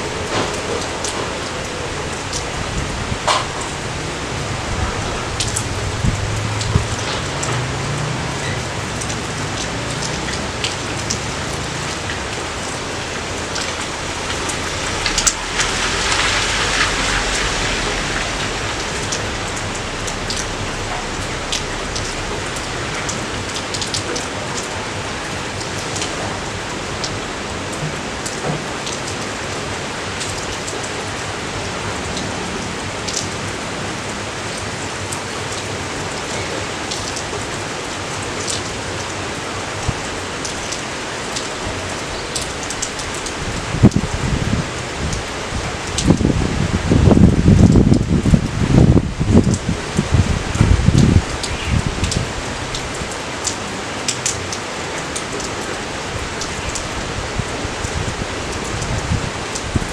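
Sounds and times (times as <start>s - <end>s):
low rumble: 0.0s - 27.8s
raindrops ticking close by: 0.0s - 59.9s
steady rain falling: 0.0s - 59.9s.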